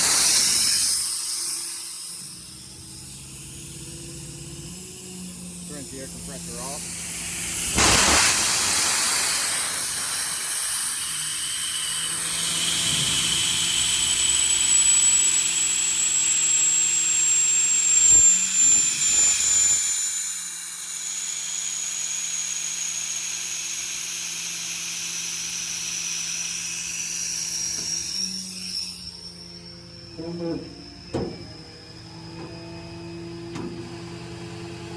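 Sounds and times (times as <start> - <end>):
blast of air: 0.0 - 1.6, 6.5 - 14.1
air compressor venting hiss: 0.0 - 21.2.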